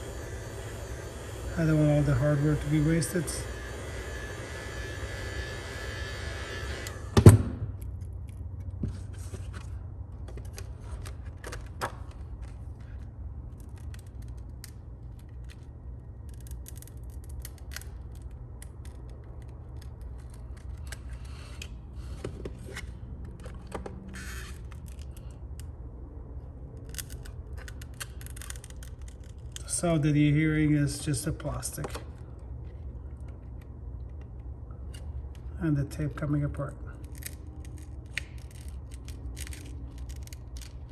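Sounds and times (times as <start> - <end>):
heat gun blowing: 0.0 - 7.5
tape and plastic crackling apart: 10.2 - 25.7, 26.7 - 29.9, 36.9 - 40.9.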